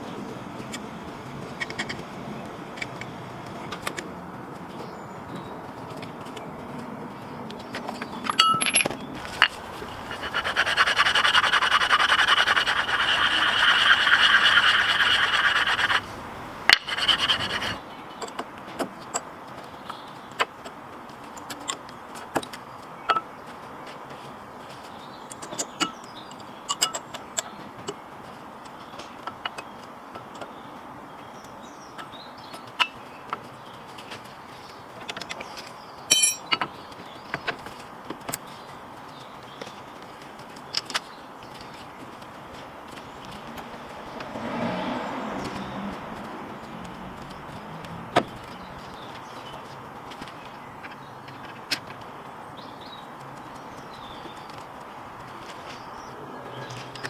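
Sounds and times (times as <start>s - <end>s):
metal tools clinking: 8.2s - 10.4s, 36.1s - 36.6s
metal scraping: 8.3s - 17.8s.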